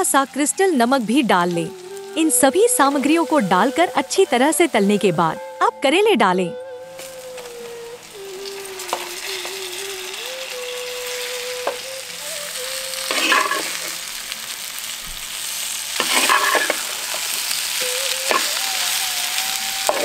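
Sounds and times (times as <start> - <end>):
gourd slices sizzling in oil: 0.0 - 5.8, 6.6 - 20.0
wooden spatula scraping a pot: 16.0 - 16.8.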